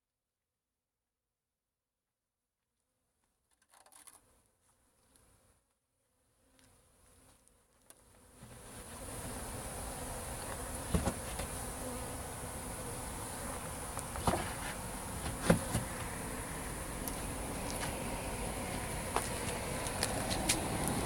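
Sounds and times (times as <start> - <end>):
honeybees buzzing: 8.0 - 21.0.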